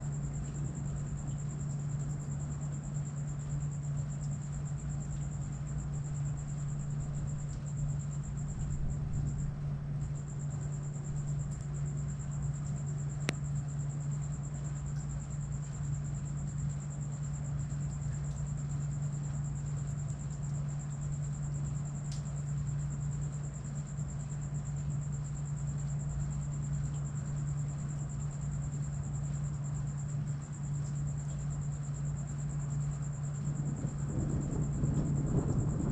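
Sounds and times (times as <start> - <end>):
crickets trilling: 0.0 - 35.9
low hum: 33.3 - 35.9.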